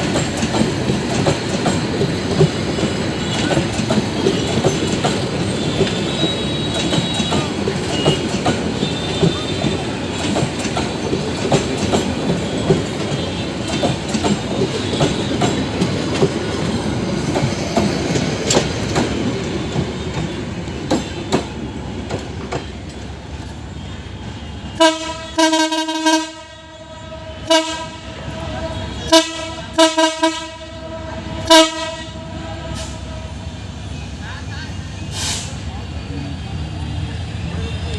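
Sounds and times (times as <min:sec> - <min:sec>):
wheels clicking over rail joints: 0:00.0 - 0:23.6
train rumbling on rails: 0:00.0 - 0:37.9
locomotive air horn blasts: 0:23.9 - 0:33.7.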